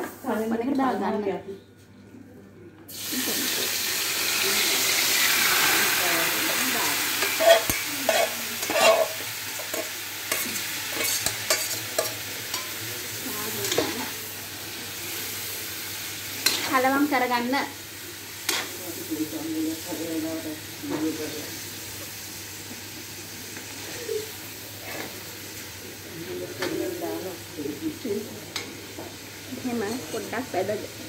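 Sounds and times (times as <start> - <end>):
chicken sizzling in hot oil: 2.9 - 31.0
metal spoon scraping and clicking: 7.2 - 9.1, 9.7 - 12.7.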